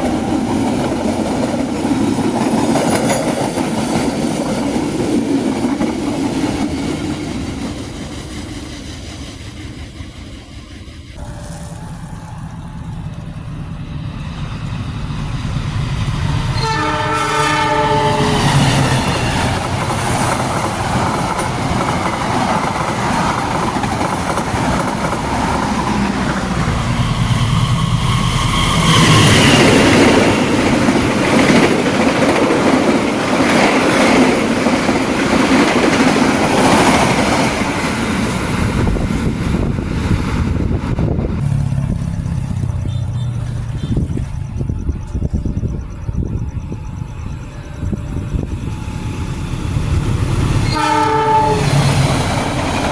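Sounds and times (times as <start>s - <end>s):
passenger train passing: 0.0s - 52.9s
train horn blast: 16.2s - 19.8s, 50.5s - 52.3s.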